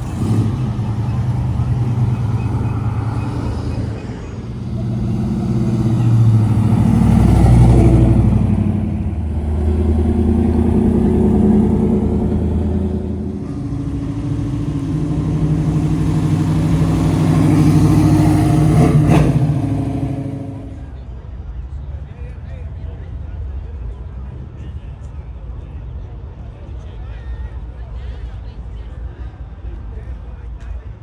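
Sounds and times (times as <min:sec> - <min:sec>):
cars driving past: 0:00.0 - 0:20.9.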